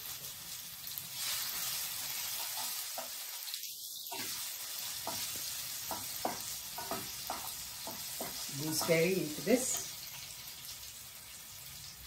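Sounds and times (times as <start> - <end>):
food sizzling in hot oil: 0.0 - 12.0
spatula knocking against a pan: 5.0 - 9.2.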